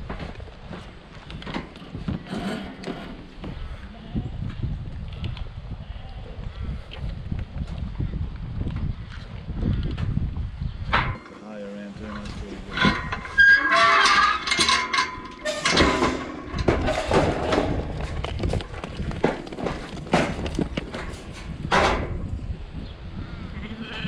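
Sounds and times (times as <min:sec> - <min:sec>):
sheep hooves clattering: 0:12.2 - 0:21.8.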